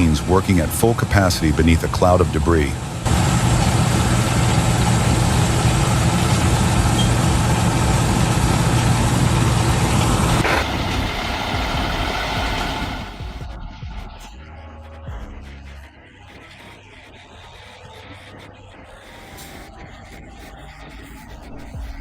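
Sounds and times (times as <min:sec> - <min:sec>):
harvester engine drone: 0:00.0 - 0:13.6
rush of machine noise: 0:00.0 - 0:13.6.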